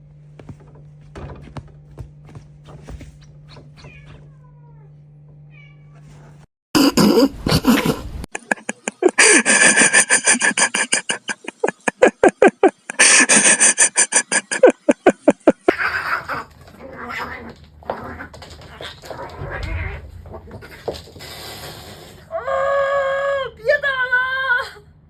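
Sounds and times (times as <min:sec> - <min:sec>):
cat crying: 0:03.8 - 0:04.9, 0:09.0 - 0:20.0.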